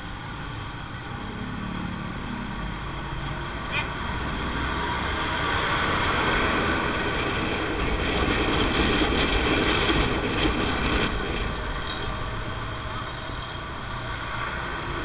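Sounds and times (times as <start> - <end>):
motorcycle engine and road noise: 0.0 - 15.0
wind rushing over microphone: 4.2 - 12.7.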